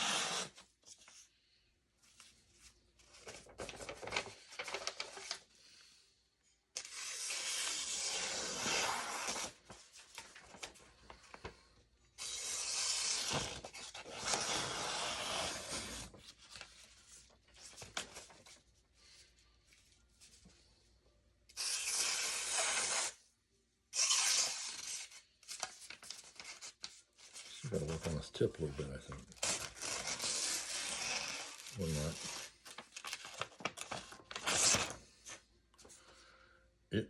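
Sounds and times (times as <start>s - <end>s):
blade slicing paper: 0.0s - 0.6s, 6.8s - 9.7s, 12.2s - 16.2s, 21.5s - 23.2s, 24.0s - 25.7s, 29.4s - 35.0s
paper rustling: 2.0s - 5.5s, 8.8s - 11.7s, 25.4s - 36.1s.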